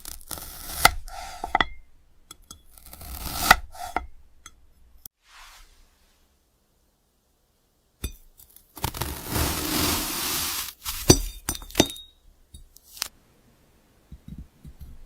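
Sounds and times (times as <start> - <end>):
knife crunching through glass: 0.0 - 1.0, 8.0 - 12.2
glassy clinks: 11.1 - 12.7.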